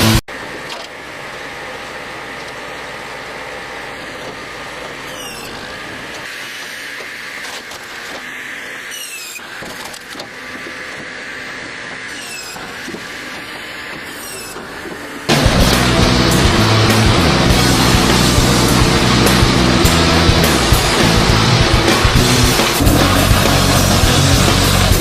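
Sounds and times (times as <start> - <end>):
tree shredder grinding wood: 0.0 - 25.0
high squeaks: 5.0 - 5.7, 8.9 - 9.5, 12.1 - 12.9, 14.0 - 14.7.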